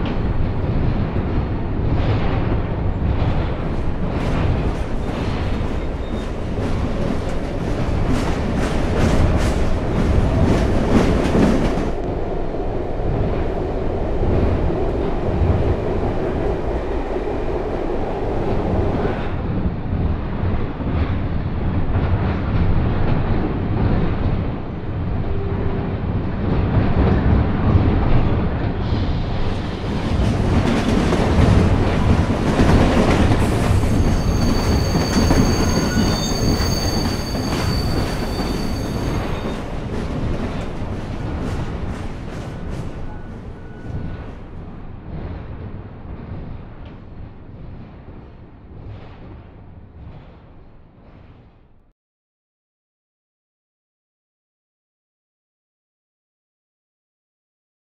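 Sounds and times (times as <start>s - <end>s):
train wheels rumbling on track: 0.0s - 51.6s
high wheel squeal: 33.8s - 39.7s.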